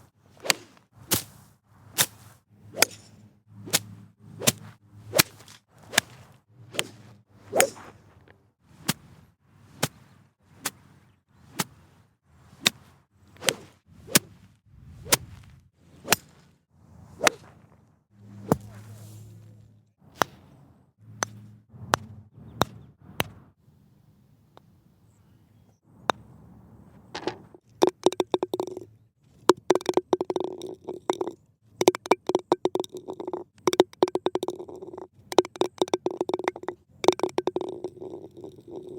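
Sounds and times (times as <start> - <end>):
golf club striking ball: 2.8 - 4.6.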